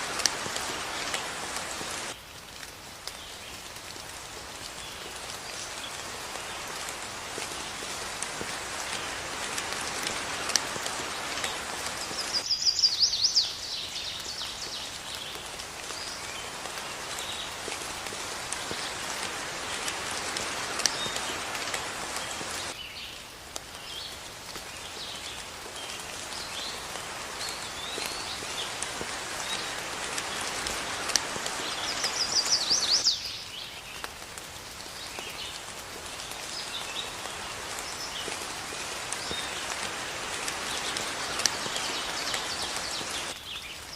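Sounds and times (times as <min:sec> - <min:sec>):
steady rain falling: 0:00.0 - 0:43.9
birds chirping: 0:07.4 - 0:23.1, 0:25.8 - 0:34.0.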